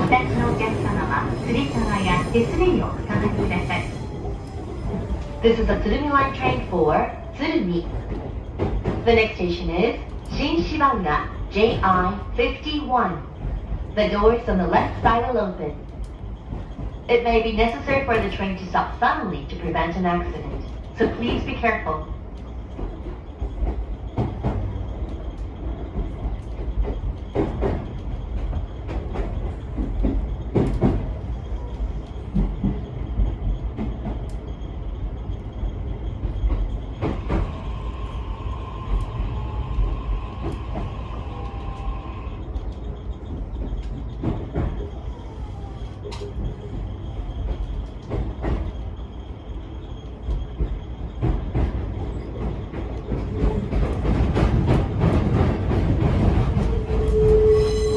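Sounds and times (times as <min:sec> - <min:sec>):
high squeal: 0:00.0 - 0:07.7, 0:56.5 - 0:57.9
train wheels rumbling on rails: 0:00.0 - 0:57.9.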